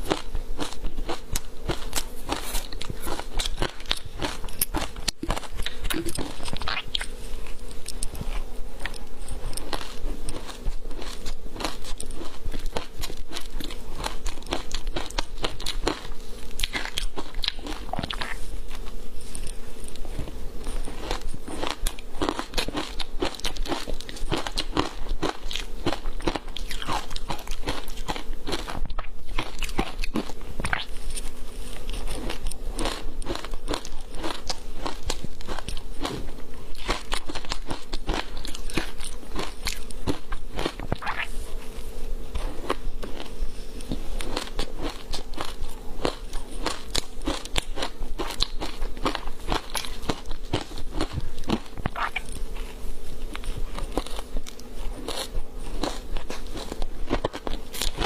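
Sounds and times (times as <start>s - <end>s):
crunching frozen ice: 53.3s - 58.0s.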